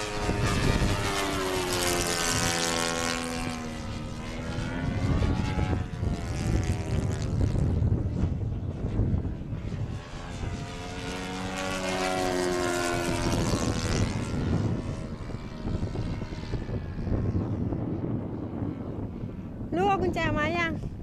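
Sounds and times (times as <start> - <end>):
model plane engine flyby: 0.0 - 21.0
wind buffeting microphone: 0.0 - 21.0.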